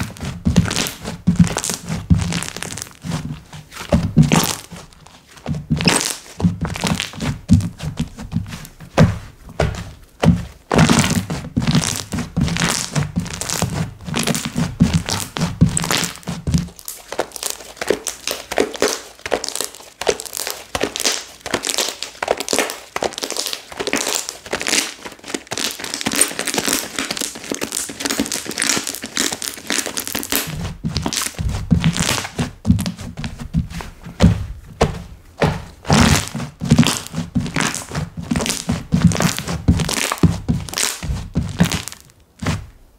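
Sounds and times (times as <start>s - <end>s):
slime crackling and popping: 0.0s - 3.2s, 4.2s - 4.8s, 5.7s - 8.0s, 10.3s - 33.1s, 34.3s - 42.6s
dull thumps: 0.0s - 19.4s, 29.3s - 42.8s.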